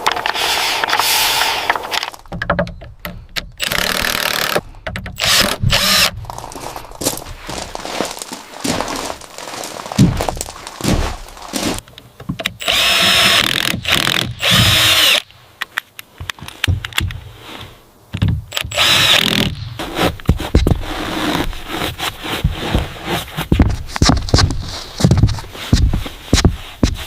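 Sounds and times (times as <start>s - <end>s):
building work knocks and clatter: 1.7s - 3.5s, 6.3s - 12.6s, 22.3s - 27.0s
power drill running: 5.2s - 6.1s, 12.6s - 15.2s, 18.7s - 19.4s.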